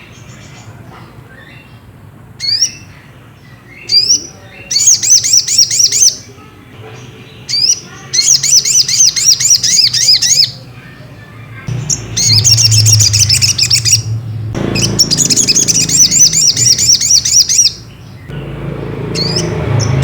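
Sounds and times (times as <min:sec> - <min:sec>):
sunbird singing trills: 0:11.7 - 0:20.0.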